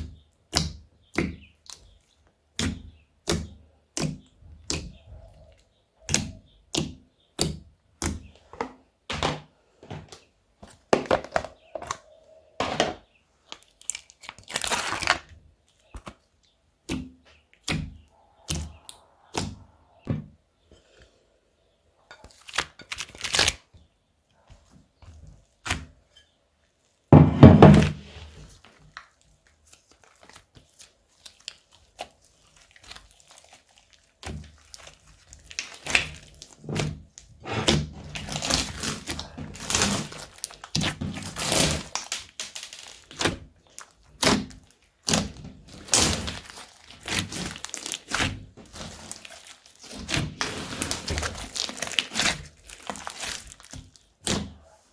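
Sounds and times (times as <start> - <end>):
slime squelching and crackling: 13.4 - 20.1, 22.2 - 27.1, 27.7 - 54.9.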